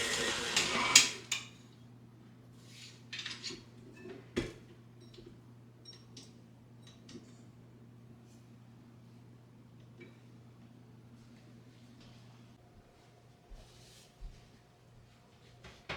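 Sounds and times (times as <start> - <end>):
electric appliance whirring: 0.0 - 1.5.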